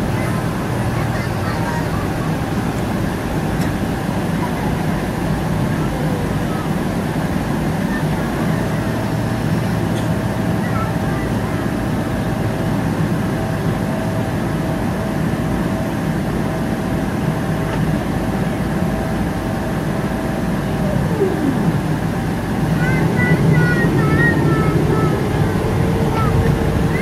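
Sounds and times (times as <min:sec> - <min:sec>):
aircraft engines and rushing air: 0:00.0 - 0:27.0
thin steady whine: 0:17.1 - 0:27.0.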